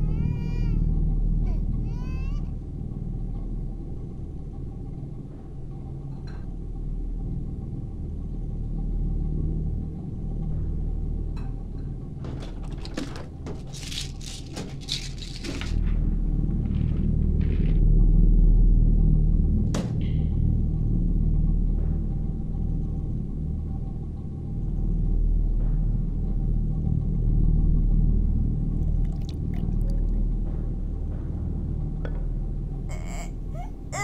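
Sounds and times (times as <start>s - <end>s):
infant crying: 0.0s - 2.6s, 32.9s - 34.0s
low rumbling drone: 15.8s - 34.0s.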